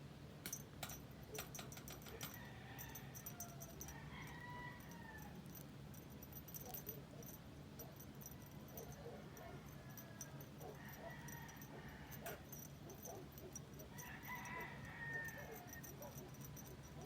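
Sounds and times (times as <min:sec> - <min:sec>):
low steady hum: 0:00.0 - 0:17.0
distant chickens calling: 0:08.6 - 0:17.0.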